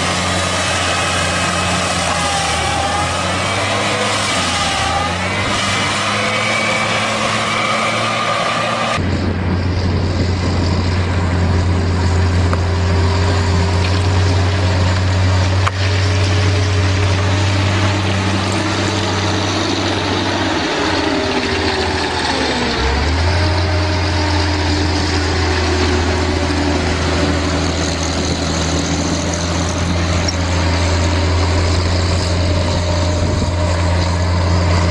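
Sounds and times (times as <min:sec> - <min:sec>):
heavy machinery engine running: 0:00.0 - 0:34.9
low hum: 0:08.9 - 0:34.9.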